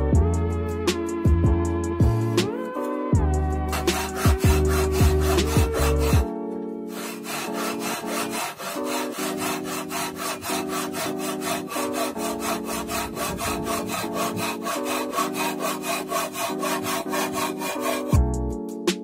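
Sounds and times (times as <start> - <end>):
saw rasping through wood: 3.7 - 6.3, 6.9 - 18.2.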